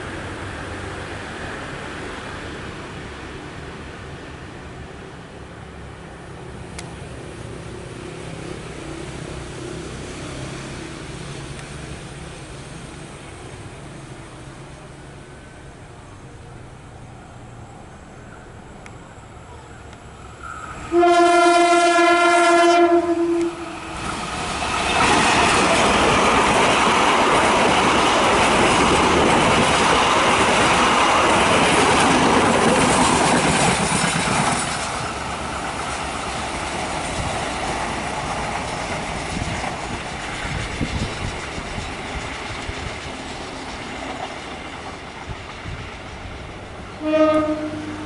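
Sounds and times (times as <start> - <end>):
train passing on rails: 0.0 - 48.0
locomotive horn blast: 20.9 - 24.0, 47.0 - 48.0.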